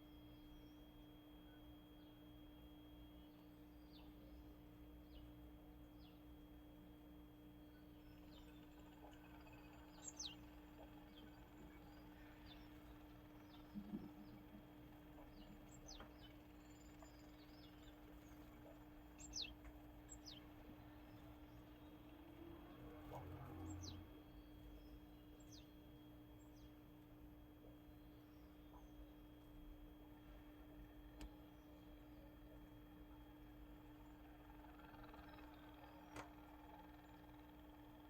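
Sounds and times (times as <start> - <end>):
steady low hum: 0.0 - 38.0
small birds calling: 7.7 - 38.0.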